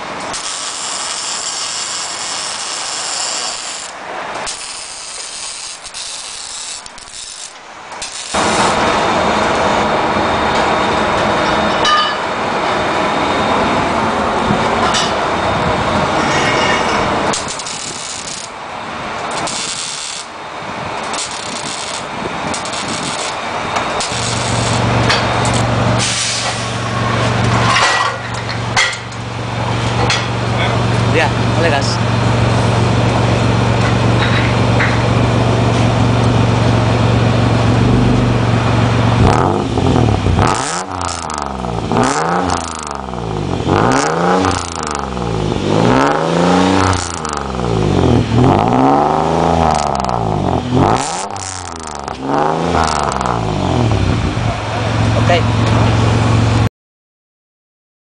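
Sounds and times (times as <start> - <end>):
steady low hum: 0.0 - 51.0, 51.6 - 56.7
hissing tool: 0.2 - 8.9, 17.3 - 18.6, 19.3 - 20.3, 21.0 - 26.8
power tool rasping: 0.3 - 8.7, 17.3 - 18.6, 19.3 - 20.3, 21.1 - 23.4, 24.0 - 25.7.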